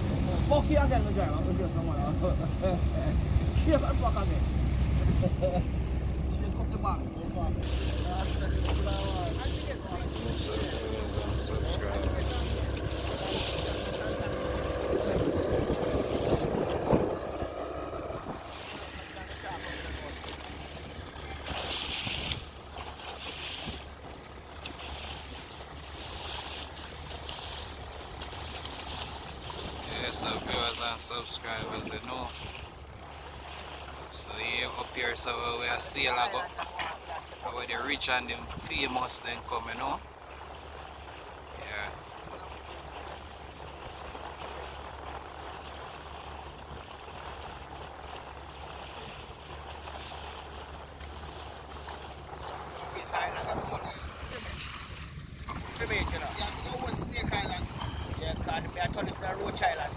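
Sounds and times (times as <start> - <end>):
wind buffeting microphone: 0.0 - 22.6, 52.3 - 59.9
motorboat engine drone: 0.0 - 59.9.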